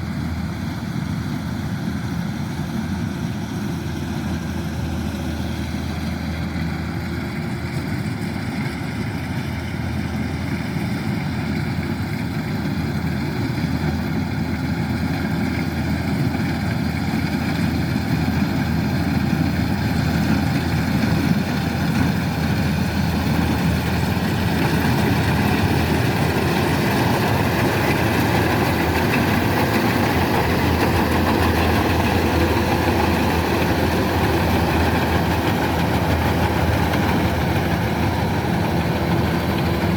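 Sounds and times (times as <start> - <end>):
combine harvester diesel engine: 0.0 - 39.9.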